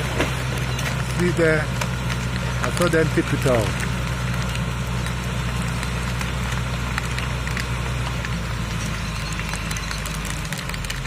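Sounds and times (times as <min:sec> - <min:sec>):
garbage debris crackling: 0:00.0 - 0:11.0
truck engine running: 0:00.0 - 0:11.0.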